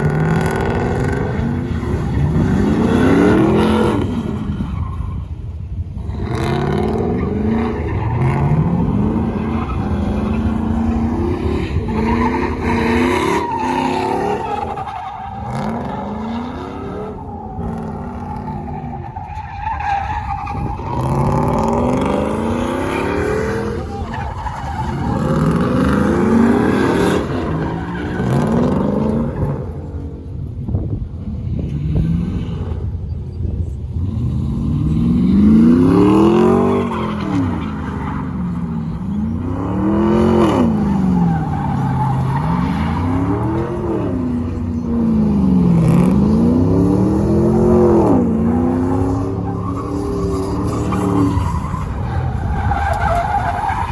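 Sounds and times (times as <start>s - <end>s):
tyres squealing: 35.9s - 53.9s.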